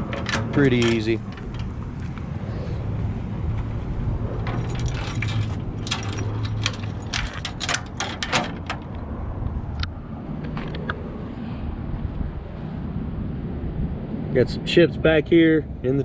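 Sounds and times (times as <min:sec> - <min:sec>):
metal tailgate clinking and rattling: 0:00.0 - 0:02.2, 0:04.4 - 0:09.0.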